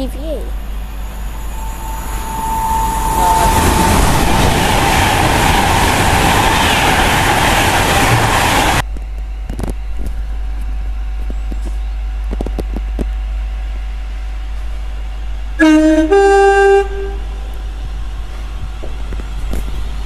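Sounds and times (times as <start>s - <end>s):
electric train passing at speed: 0.0s - 8.9s, 13.3s - 20.0s
train horn: 1.3s - 6.5s, 15.6s - 17.5s.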